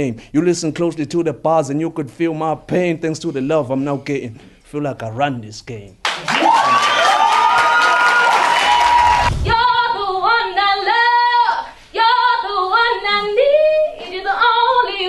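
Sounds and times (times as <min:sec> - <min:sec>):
crowd cheering and applause: 0:06.1 - 0:09.8
woman singing unaccompanied: 0:09.5 - 0:15.0.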